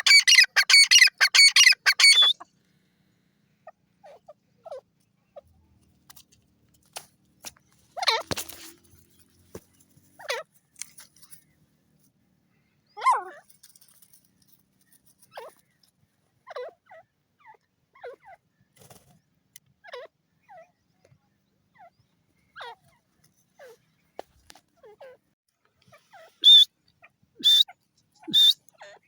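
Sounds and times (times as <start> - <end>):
francolin calling: 0.0 - 2.5, 26.0 - 26.7, 27.4 - 29.0.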